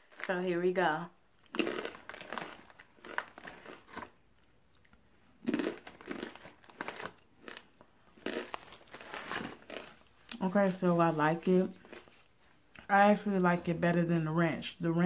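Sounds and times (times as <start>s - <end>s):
chewing crunchy corn snacks: 0.0s - 0.3s, 1.3s - 10.5s, 11.8s - 12.9s.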